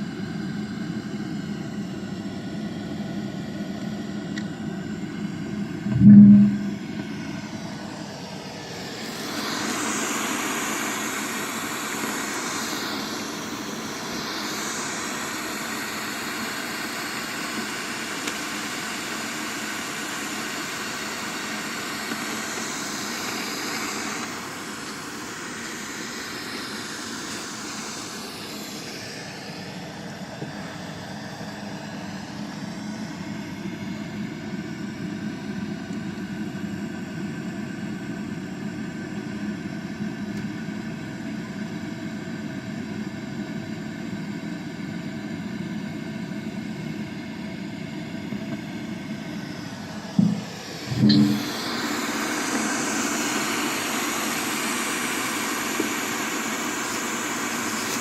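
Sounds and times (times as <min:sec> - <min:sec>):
faint hum: 0:00.0 - 0:18.3, 0:46.6 - 0:52.6
low thump: 0:05.9 - 0:06.8, 0:50.2 - 0:51.4.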